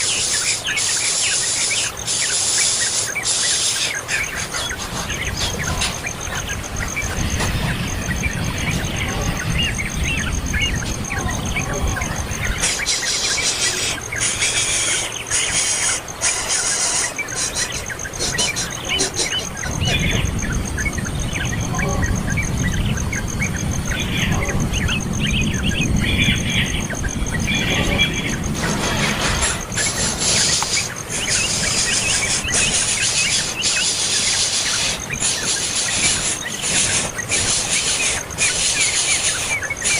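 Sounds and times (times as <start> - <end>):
high rasping hisses: 0.0 - 5.8, 12.5 - 19.4, 28.6 - 39.9
small birds chirping: 0.0 - 39.9.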